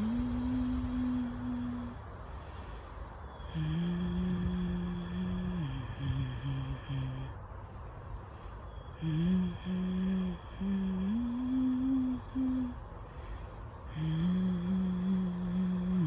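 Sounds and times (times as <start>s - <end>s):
person humming low notes: 0.0s - 2.2s, 3.4s - 7.4s, 9.0s - 13.0s, 13.9s - 16.0s.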